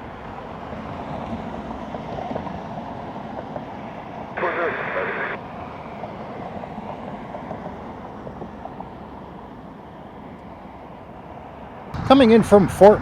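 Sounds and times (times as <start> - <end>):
distant jet engines rumbling: 4.4 - 5.4.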